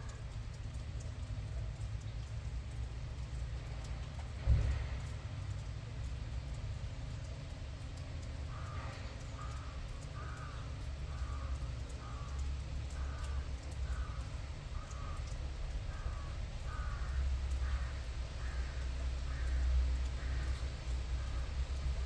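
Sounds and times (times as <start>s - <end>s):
bird calling: 8.5s - 21.5s.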